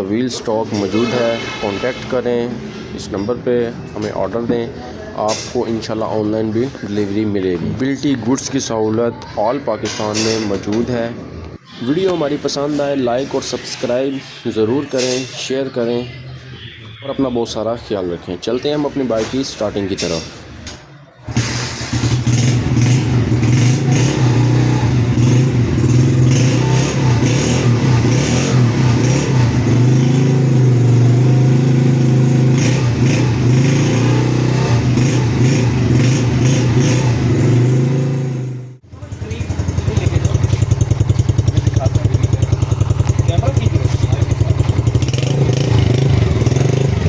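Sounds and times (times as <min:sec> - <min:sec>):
motorcycle engine idling: 0:21.5 - 0:33.9, 0:34.7 - 0:47.0.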